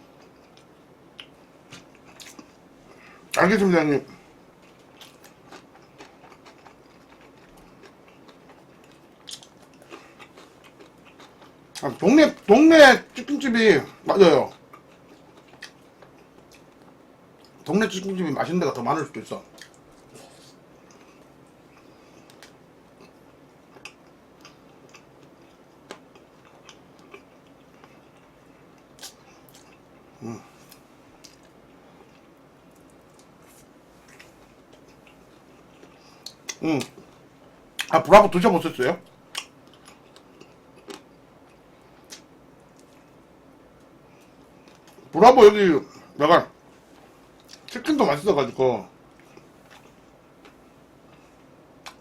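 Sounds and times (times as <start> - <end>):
person chewing food: 0.0 - 3.0, 4.6 - 11.8, 14.5 - 17.7, 19.5 - 37.9, 39.2 - 45.1, 49.1 - 52.0
low steady background noise: 0.0 - 52.0.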